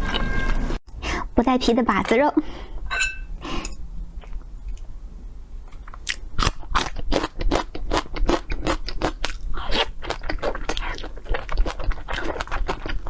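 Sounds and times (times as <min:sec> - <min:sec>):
chewing and biting mouth sounds: 0:05.7 - 0:13.0.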